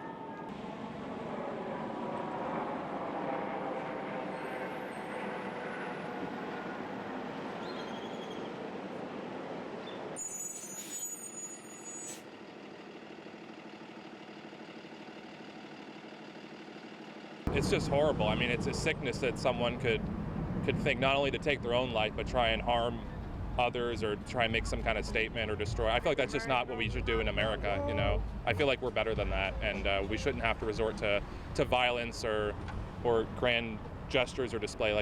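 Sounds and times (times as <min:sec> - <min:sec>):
vehicles passing: 0:00.1 - 0:10.2, 0:17.2 - 0:35.0
high-pitched squeal: 0:10.2 - 0:12.2.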